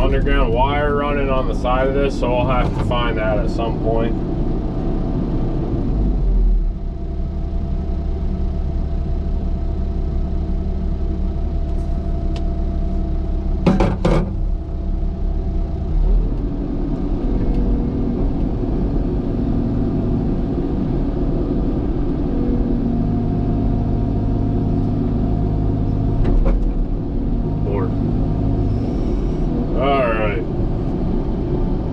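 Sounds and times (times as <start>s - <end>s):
heavy diesel machine running: 0.0s - 31.9s
sharp knocks: 13.6s - 14.5s.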